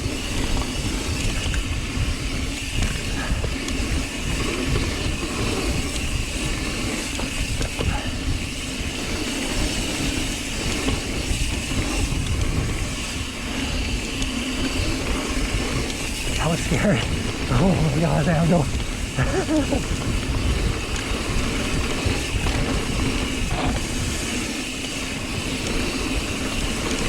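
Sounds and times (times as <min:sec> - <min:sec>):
wind noise: 0:00.0 - 0:27.0
bike knocks and rattles: 0:07.0 - 0:08.2, 0:19.9 - 0:25.8
tyres rumbling on dirt: 0:10.5 - 0:27.0.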